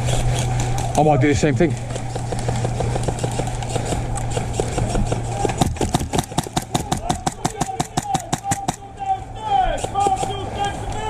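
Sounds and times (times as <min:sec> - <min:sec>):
airsoft gun shots: 0:05.6 - 0:08.9.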